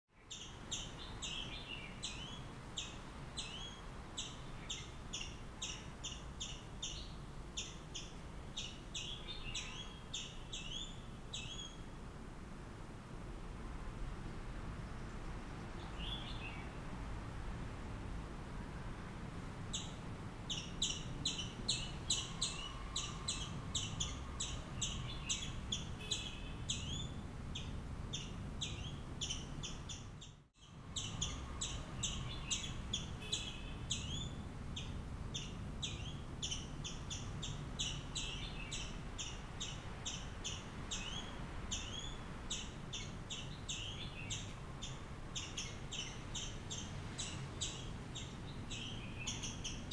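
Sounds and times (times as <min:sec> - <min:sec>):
low background noise: 0:00.1 - 0:49.9
small bird chirping rapidly: 0:00.2 - 0:11.9, 0:19.7 - 0:49.9.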